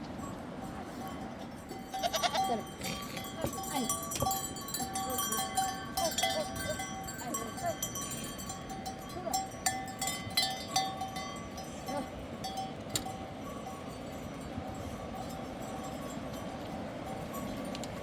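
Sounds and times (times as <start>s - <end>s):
livestock bells clinking: 0.0s - 18.0s.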